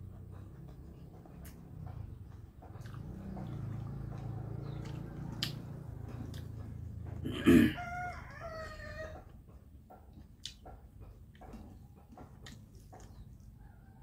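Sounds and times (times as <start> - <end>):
chewing and mouth sounds: 0.3 - 7.8, 9.9 - 13.6
rooster call: 7.2 - 9.2.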